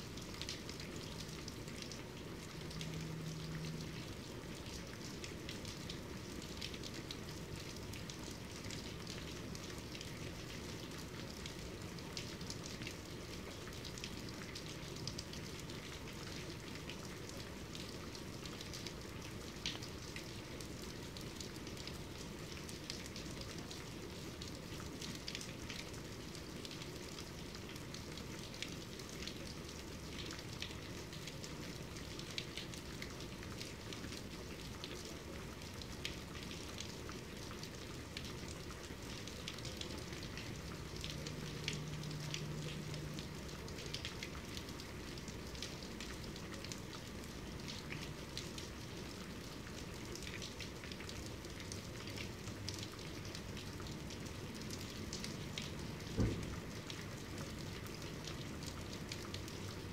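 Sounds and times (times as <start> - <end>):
raindrops tapping on surface: 32.0 - 48.8, 49.6 - 59.9
heavy rainfall hiss: 55.4 - 57.4.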